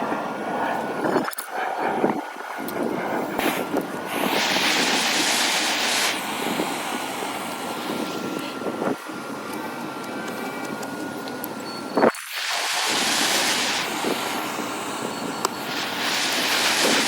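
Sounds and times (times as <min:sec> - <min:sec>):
faint high whine: 0:00.0 - 0:17.0
whooshing machine noise: 0:00.0 - 0:17.0
bright hiss: 0:03.4 - 0:09.0, 0:12.0 - 0:17.0.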